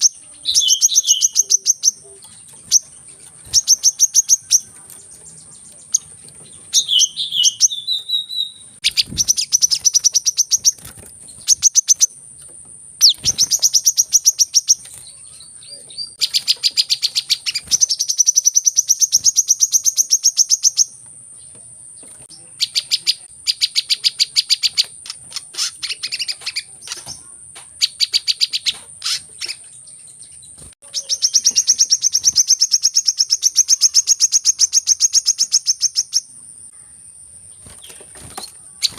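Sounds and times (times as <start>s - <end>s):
sunbird chirping: 0.0s - 38.9s.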